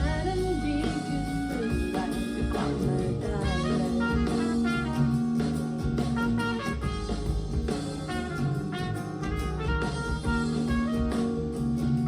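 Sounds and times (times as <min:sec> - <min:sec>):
pop music through speakers: 0:00.0 - 0:05.2.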